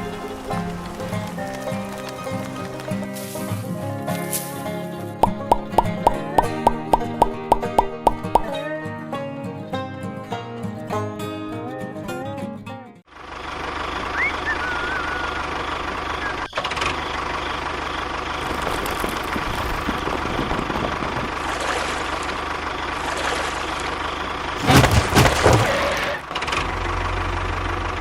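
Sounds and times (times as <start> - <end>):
music: 0.0 - 13.0
engine running steadily: 13.1 - 28.0.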